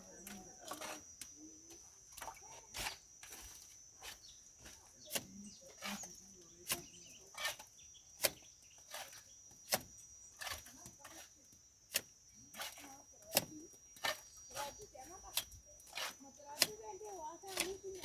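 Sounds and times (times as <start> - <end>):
plastering tool scraping mortar: 0.0 - 1.4, 2.2 - 18.0.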